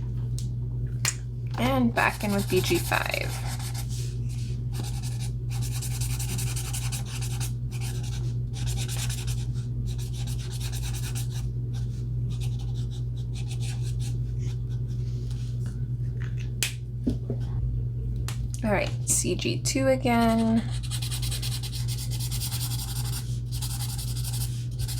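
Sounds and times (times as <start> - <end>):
steady low hum: 0.0 - 24.9
marker rubbing across paper: 20.8 - 24.9.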